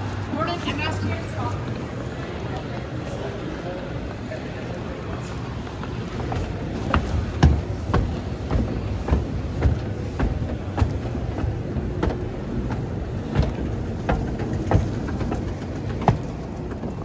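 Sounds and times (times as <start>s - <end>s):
low background rumble: 5.6s - 17.0s
footsteps on hard floor: 5.8s - 16.4s.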